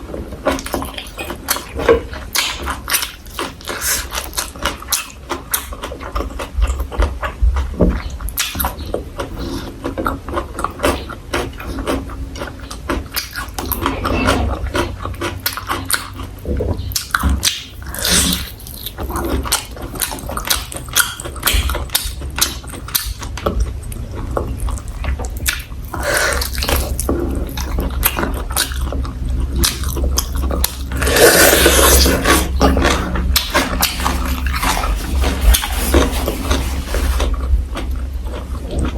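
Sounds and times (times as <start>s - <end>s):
chewing and crunching food: 0.0s - 38.9s.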